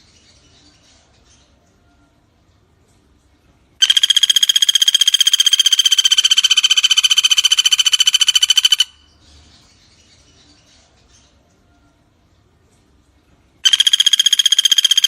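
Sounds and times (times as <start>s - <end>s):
woodpecker trill: 3.8s - 9.7s, 13.6s - 15.0s.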